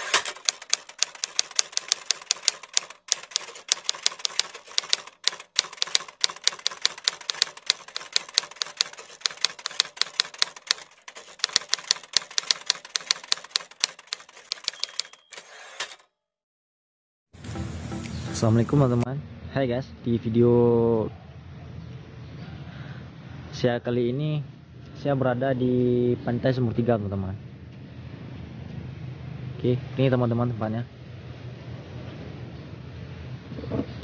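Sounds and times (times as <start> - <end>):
typewriter keystroke clicks: 0.0 - 16.0.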